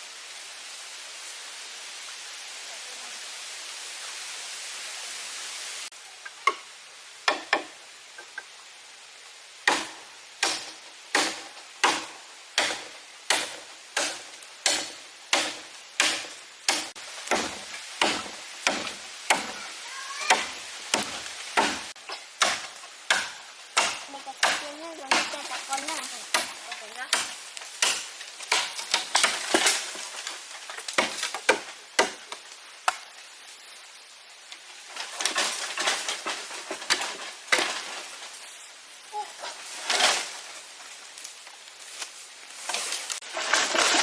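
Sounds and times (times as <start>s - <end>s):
rain-like hiss: 0.0s - 44.0s
knife chopping on wood: 9.7s - 19.6s, 20.3s - 25.3s.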